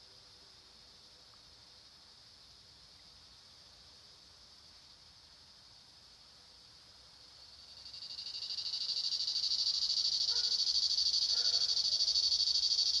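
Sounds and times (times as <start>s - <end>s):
cicada buzzing: 7.7s - 13.0s.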